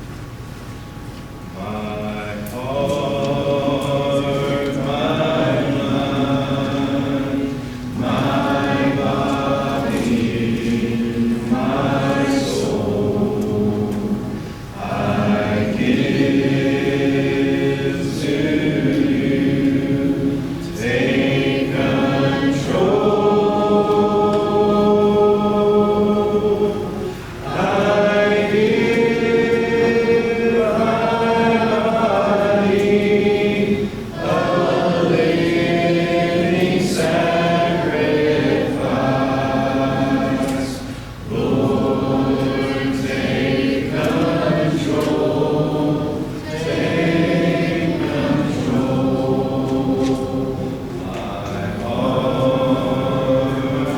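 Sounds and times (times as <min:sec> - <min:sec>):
congregation singing a hymn: 0:00.8 - 0:53.9.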